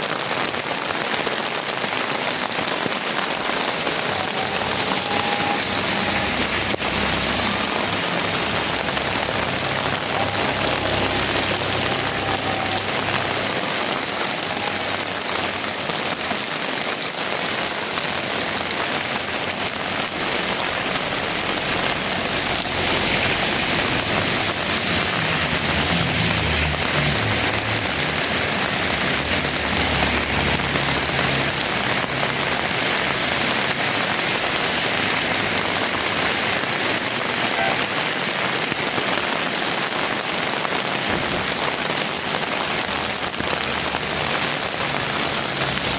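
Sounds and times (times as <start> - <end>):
heavy rain falling: 0.0 - 45.9.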